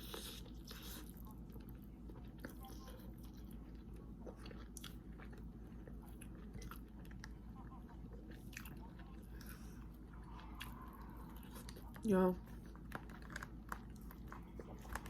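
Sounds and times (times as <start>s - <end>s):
person chewing and biting: 0.0s - 15.0s
low hum: 7.3s - 15.0s.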